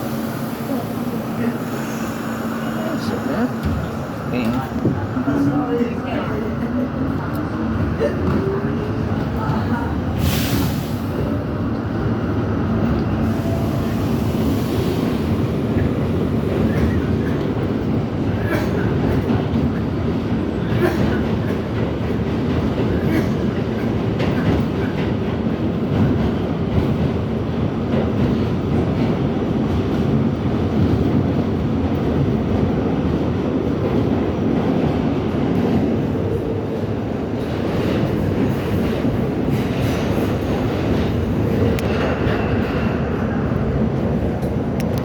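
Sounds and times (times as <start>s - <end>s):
subway train rumbling: 0.0s - 45.0s.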